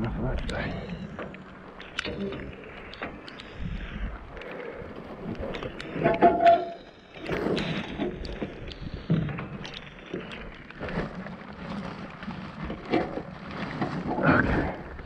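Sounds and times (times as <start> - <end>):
rain: 0.0 - 15.0
muffled rustling of scrap: 4.9 - 15.0.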